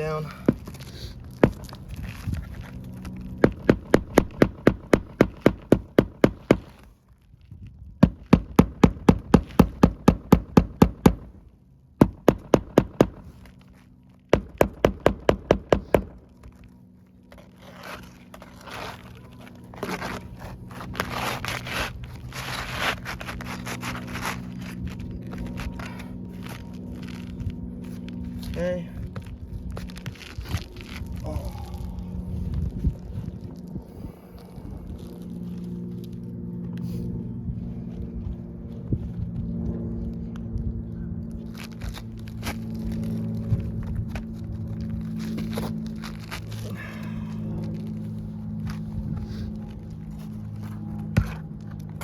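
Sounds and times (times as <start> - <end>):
hammer pounding nails: 1.4 - 1.8, 3.4 - 6.8, 8.0 - 11.4, 12.0 - 13.3, 14.3 - 16.2
scraping and rustling: 16.4 - 28.6.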